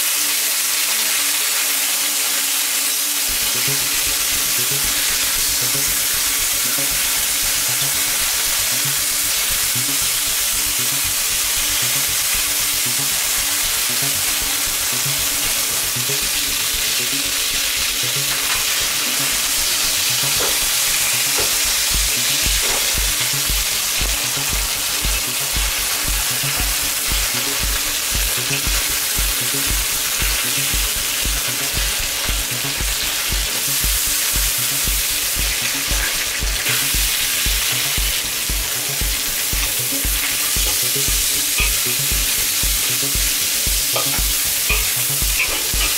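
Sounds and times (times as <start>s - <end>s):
meat sizzling in hot oil: 0.0s - 45.9s
background music with low beat: 3.3s - 45.9s
metal tongs clicking on pan: 43.9s - 45.9s.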